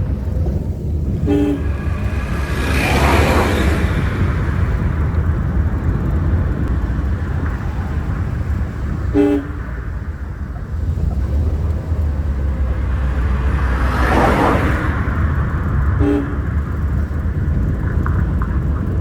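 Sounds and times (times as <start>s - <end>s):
car engine and tyres rumbling: 0.0s - 19.0s
rushing noise: 0.0s - 19.0s
car horn toot: 1.1s - 5.2s, 8.9s - 10.2s, 13.7s - 16.8s.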